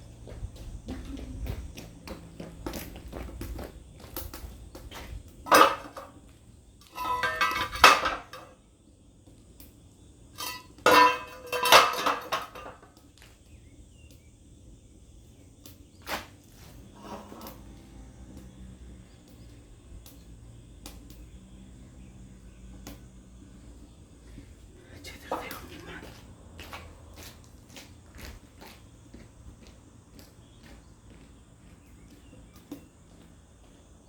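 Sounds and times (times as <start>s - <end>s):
metal pieces clanking: 5.5s - 6.2s, 6.8s - 8.6s, 10.4s - 12.9s.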